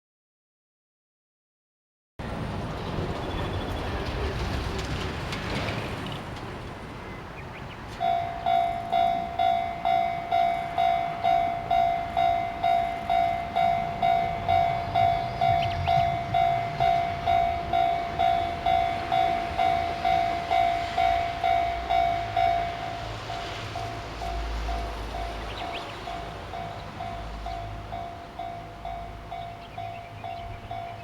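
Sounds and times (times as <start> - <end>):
level crossing bell ringing: 8.0 - 31.0.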